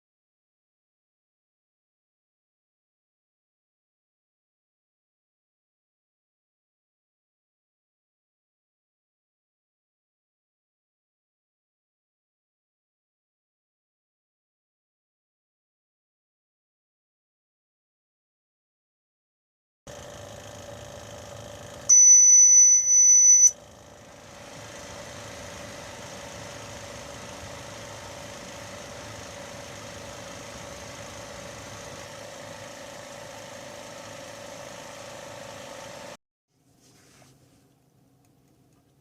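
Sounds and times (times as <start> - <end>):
fan and heater hum: 19.9 - 22.2, 23.3 - 39.0
high electronic beep: 21.9 - 23.5.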